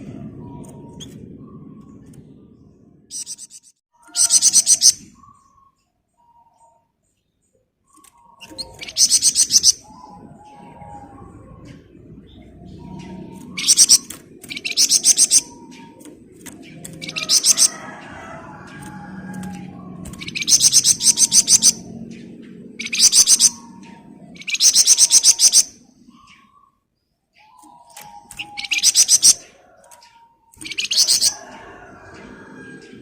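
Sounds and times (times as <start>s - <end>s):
songbird rapid rattling song: 3.1s - 5.7s, 7.4s - 10.3s, 11.6s - 26.7s, 27.4s - 33.0s.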